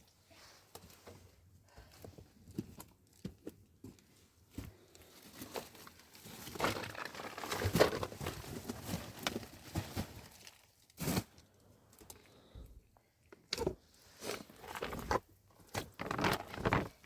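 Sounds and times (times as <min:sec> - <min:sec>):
crinkling and rustling: 0:00.0 - 0:12.4, 0:13.2 - 0:17.0.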